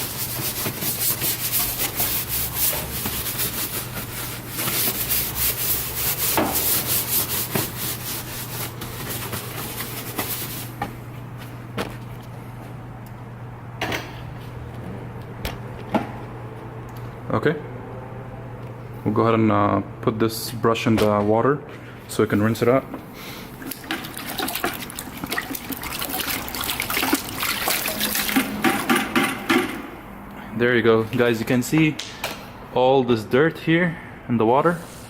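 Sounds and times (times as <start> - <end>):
brush scrubbing wet plastic: 0.0 - 10.9, 23.6 - 29.3.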